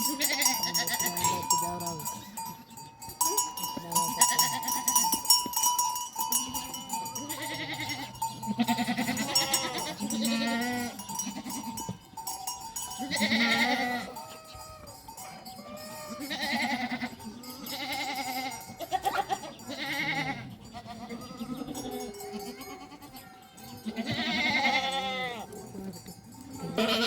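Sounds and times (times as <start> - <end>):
livestock bleating: 0.0 - 2.4, 4.0 - 5.1, 6.4 - 12.0, 13.0 - 14.9, 15.6 - 25.6, 26.6 - 27.0
animal bells ringing: 0.0 - 27.0.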